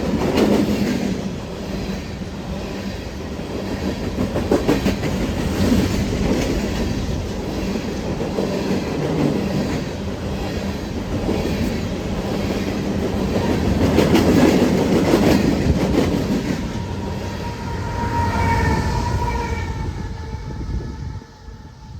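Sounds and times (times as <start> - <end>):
freight train rumbling past: 0.0 - 21.9
wheels clacking over rail joints: 3.6 - 17.0.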